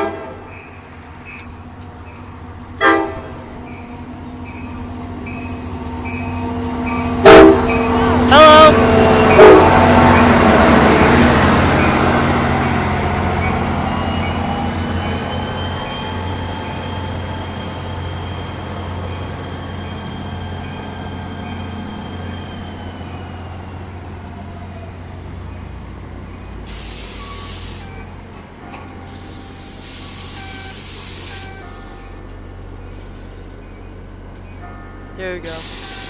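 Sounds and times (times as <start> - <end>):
air brake hiss: 26.7 - 28.0, 29.0 - 32.0, 35.5 - 36.0.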